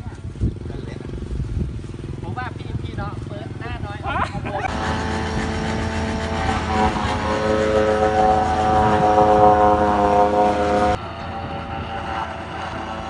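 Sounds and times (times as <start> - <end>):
motor humming: 4.7 - 13.0.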